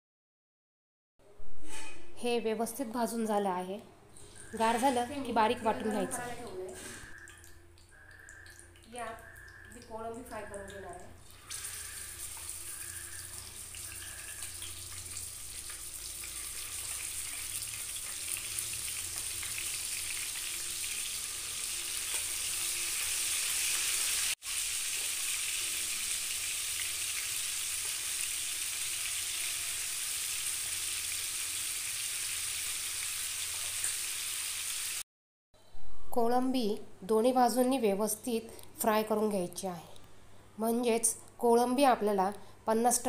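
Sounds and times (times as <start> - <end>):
prawns sizzling in hot oil: 11.2 - 35.0.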